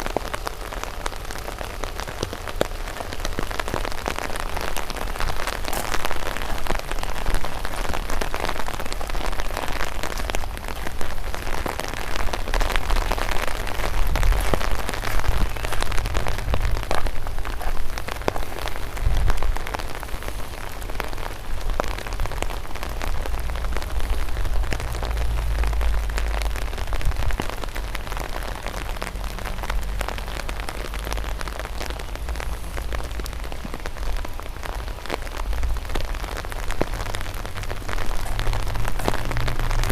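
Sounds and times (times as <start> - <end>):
rain hiss: 0.0 - 39.9
raindrops ticking: 0.0 - 39.9.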